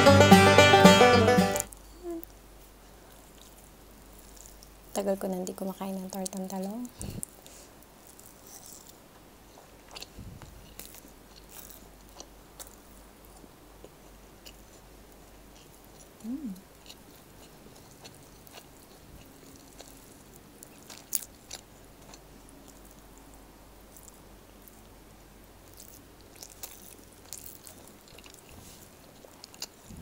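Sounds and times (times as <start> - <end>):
person humming: 0.0 - 2.3, 16.2 - 16.6
person chewing food: 2.9 - 30.0.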